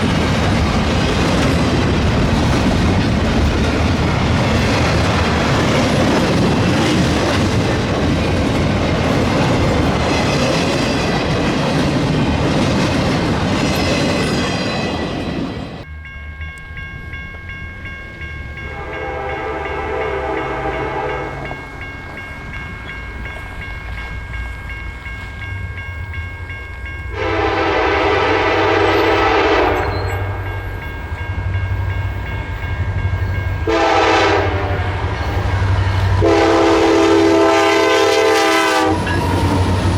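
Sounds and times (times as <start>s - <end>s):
locomotive air horn blasts: 18.7s - 21.5s, 27.1s - 30.4s, 33.7s - 35.0s, 36.2s - 39.1s.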